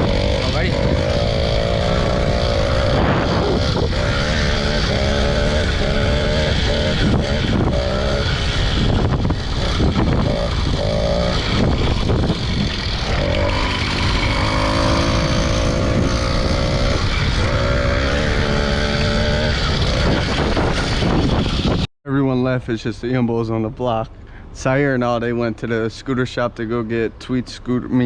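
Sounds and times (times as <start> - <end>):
low rumble: 0.0 - 21.9
small motorbike engine revving: 0.0 - 21.9.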